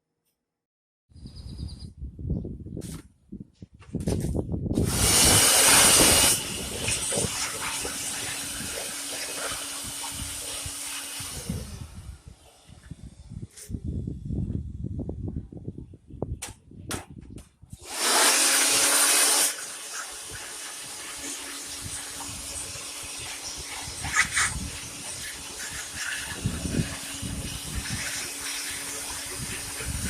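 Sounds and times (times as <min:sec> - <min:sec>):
battery blower rushing air: 0:04.7 - 0:14.9, 0:17.7 - 0:30.0.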